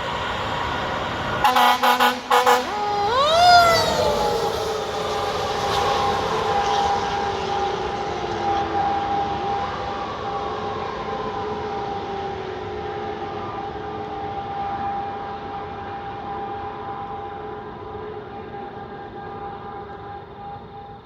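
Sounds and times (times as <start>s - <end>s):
fire truck siren winding down: 0.0s - 21.0s
steady high tone: 1.4s - 8.1s.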